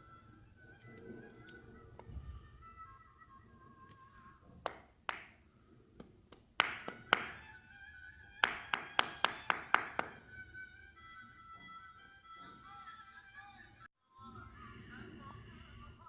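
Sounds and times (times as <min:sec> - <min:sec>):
faint background music: 0:00.0 - 0:04.7, 0:06.6 - 0:16.0.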